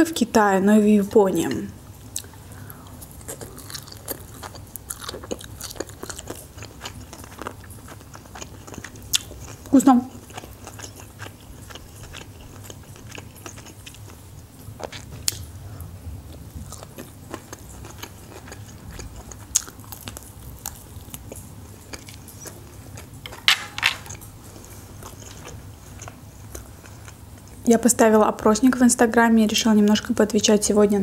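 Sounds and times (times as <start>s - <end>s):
chewing with wet mouth clicks: 3.2s - 14.2s, 16.7s - 23.1s, 25.0s - 27.6s.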